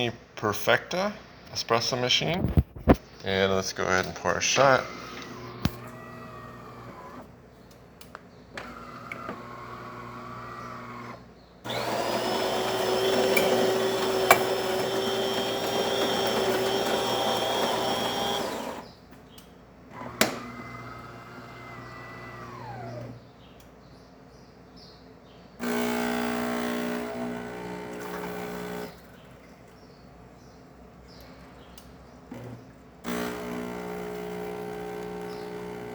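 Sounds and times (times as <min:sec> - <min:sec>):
coffee grinder whirring: 0:04.8 - 0:07.3, 0:08.6 - 0:19.0, 0:20.0 - 0:23.2, 0:25.6 - 0:29.1, 0:33.0 - 0:35.9
espresso machine motor hum: 0:04.8 - 0:07.3, 0:08.6 - 0:18.9, 0:20.0 - 0:23.1, 0:25.6 - 0:29.1, 0:33.0 - 0:35.9.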